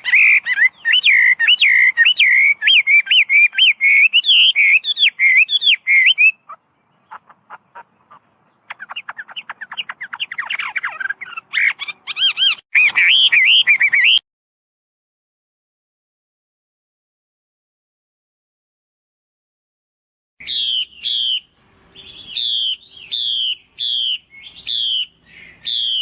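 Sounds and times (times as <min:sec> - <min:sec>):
bird singing whistled notes: 0:00.0 - 0:07.2, 0:08.7 - 0:14.2, 0:20.4 - 0:26.0.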